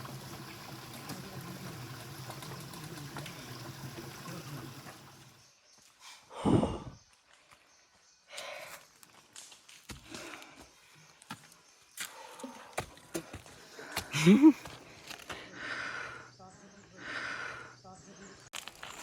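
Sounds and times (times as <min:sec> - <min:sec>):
water running: 0:00.0 - 0:05.4.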